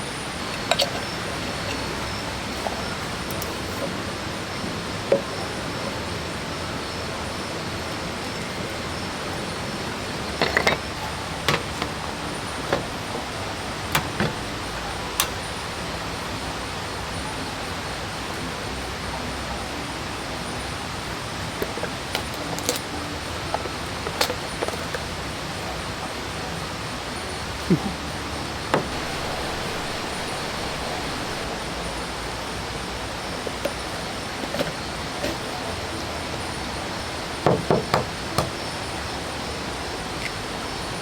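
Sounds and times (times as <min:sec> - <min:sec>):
camp gear clicks and knocks: 0:00.4 - 0:04.0, 0:10.2 - 0:15.7, 0:21.5 - 0:25.7, 0:28.7 - 0:31.5, 0:33.4 - 0:35.7
waterfall and stream rushing: 0:28.1 - 0:35.4.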